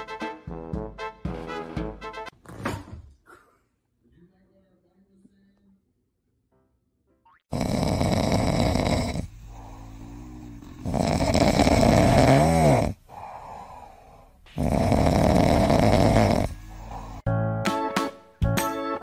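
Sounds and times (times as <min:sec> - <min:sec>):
cat snoring: 0:07.5 - 0:17.3.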